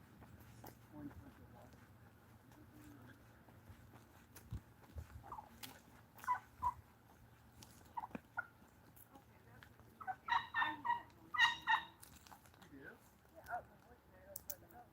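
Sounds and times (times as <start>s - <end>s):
soft turkey calls: 0.3s - 12.6s
turkey gobbling: 5.2s - 7.0s, 7.7s - 8.7s, 10.0s - 12.4s.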